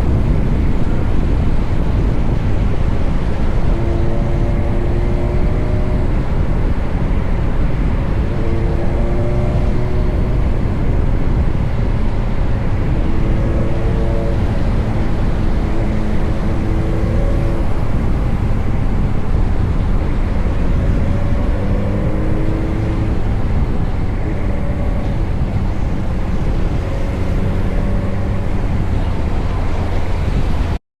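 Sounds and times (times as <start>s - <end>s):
motorcycle engine drone: 0.0s - 30.8s
wind rushing: 0.0s - 30.8s
pitched vehicle tones: 13.0s - 30.8s.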